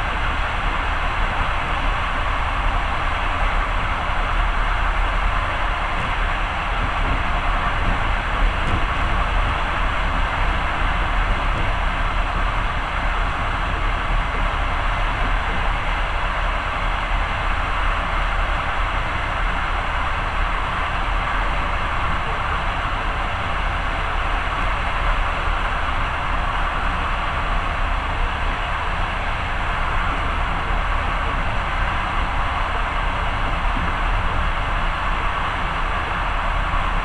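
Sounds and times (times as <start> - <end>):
train rumble and rushing: 0.0 - 37.0.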